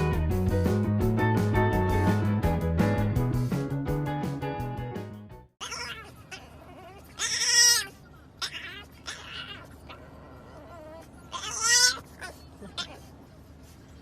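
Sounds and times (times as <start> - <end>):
young animal crying: 5.6 - 13.1.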